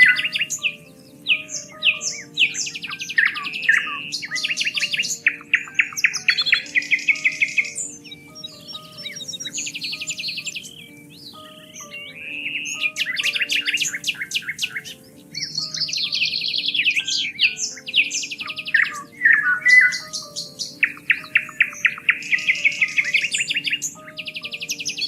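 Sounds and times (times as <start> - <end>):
soft background music: 0.0 - 25.0
songbirds singing: 0.0 - 25.0.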